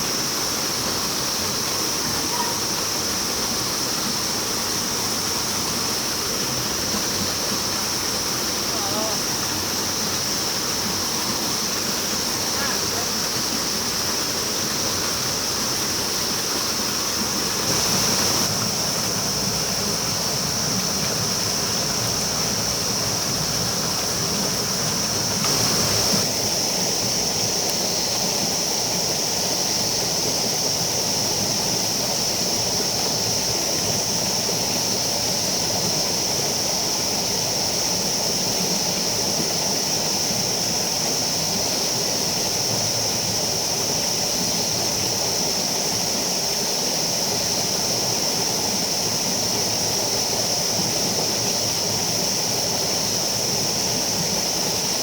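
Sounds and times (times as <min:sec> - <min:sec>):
river water rushing: 0:00.0 - 0:55.0
steady high-pitched hiss: 0:00.0 - 0:55.0.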